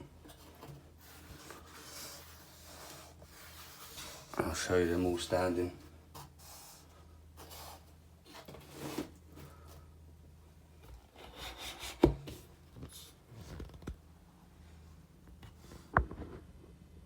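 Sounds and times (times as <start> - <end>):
figures rubbing and scraping: 0.3 - 9.1.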